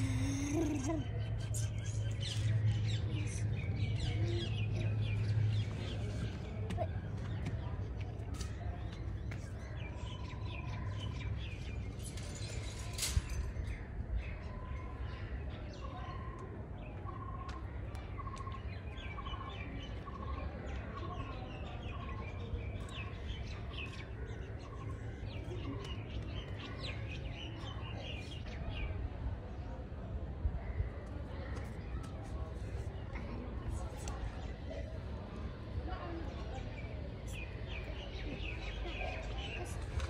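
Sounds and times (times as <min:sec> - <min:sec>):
birds chirping: 0:00.0 - 0:29.1.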